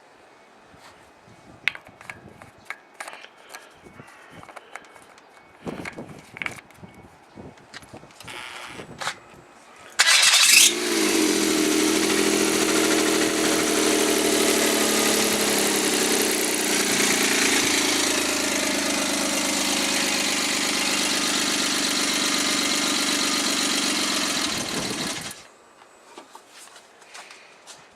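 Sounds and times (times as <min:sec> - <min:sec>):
engine cranking and idling: 0:10.0 - 0:25.5.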